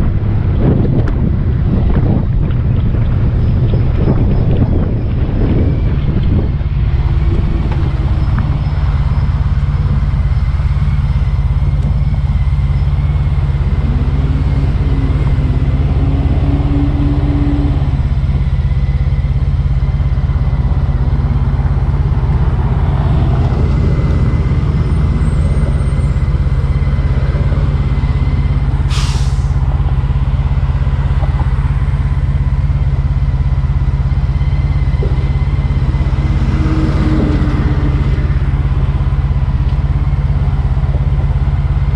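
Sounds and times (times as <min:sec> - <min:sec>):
motorcycle engine running: 0:00.0 - 0:28.9, 0:29.7 - 0:41.9
wind noise on microphone: 0:00.0 - 0:41.9
short sharp hiss: 0:28.9 - 0:29.6.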